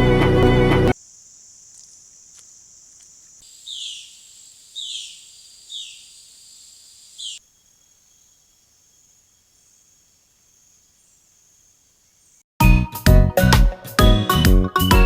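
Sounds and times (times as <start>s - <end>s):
high-pitched insect chorus: 0.9s - 12.4s.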